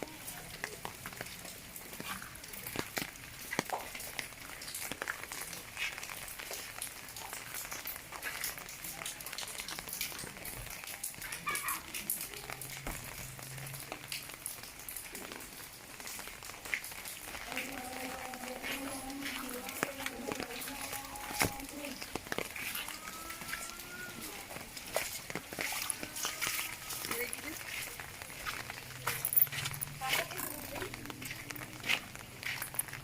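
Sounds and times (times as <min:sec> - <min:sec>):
raindrops ticking: 0:00.0 - 0:33.0
steady rain hiss: 0:00.0 - 0:33.0.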